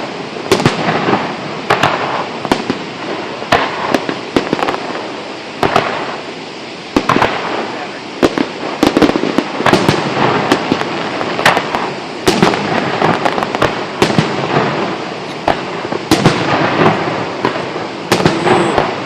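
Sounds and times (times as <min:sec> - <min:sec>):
continuous rushing noise: 0:00.0 - 0:19.0
firework shells bursting: 0:06.9 - 0:19.0.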